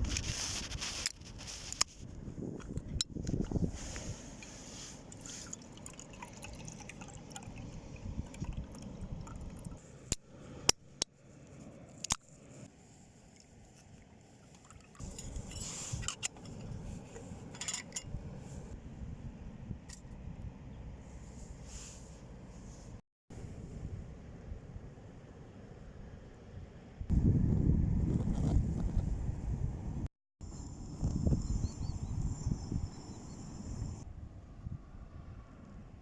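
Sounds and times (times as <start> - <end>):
wind rumble on microphone: 0.0 - 5.4, 7.3 - 9.8, 15.0 - 25.1, 26.0 - 36.0
liquid trickling and dripping: 5.1 - 9.8, 13.2 - 15.0.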